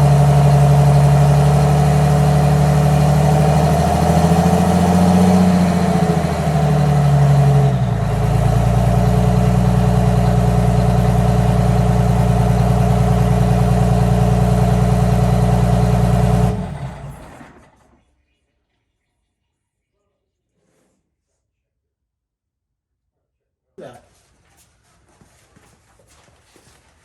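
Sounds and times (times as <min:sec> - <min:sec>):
diesel engine idling: 0:00.0 - 0:17.9
engine winding down: 0:00.0 - 0:18.0.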